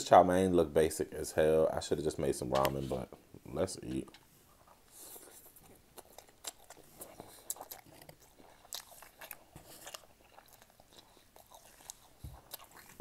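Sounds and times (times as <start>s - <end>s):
chewing with wet mouth clicks: 4.6s - 13.0s.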